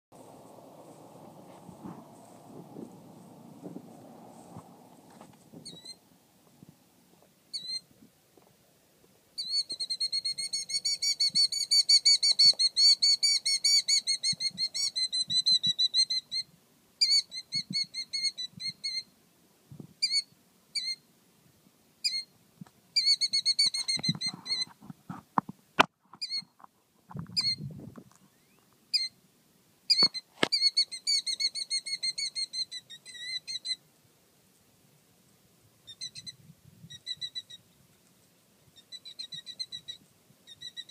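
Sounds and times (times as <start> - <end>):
bird alarm trills: 5.6 - 6.0, 7.5 - 7.8, 29.9 - 33.8, 38.8 - 40.9.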